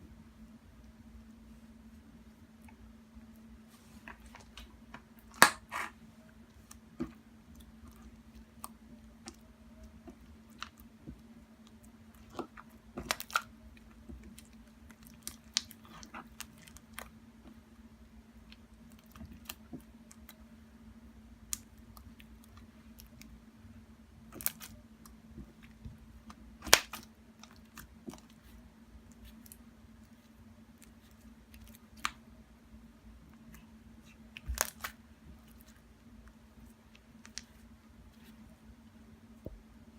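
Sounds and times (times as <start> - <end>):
low electrical hum: 0.0 - 39.9
slime clicking and crackling: 6.6 - 17.2, 24.3 - 30.2, 33.5 - 35.8.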